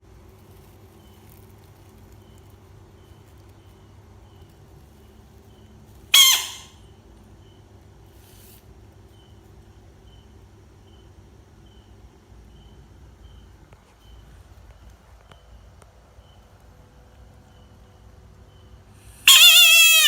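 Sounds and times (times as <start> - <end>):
steady low hum: 0.0 - 19.3
bullfrog squeal: 6.1 - 6.8, 19.0 - 20.0.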